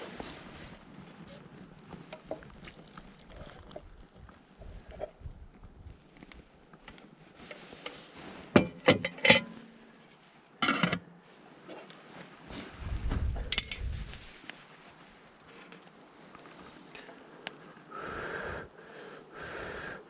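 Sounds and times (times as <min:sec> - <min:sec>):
low rumble: 0:12.7 - 0:14.3.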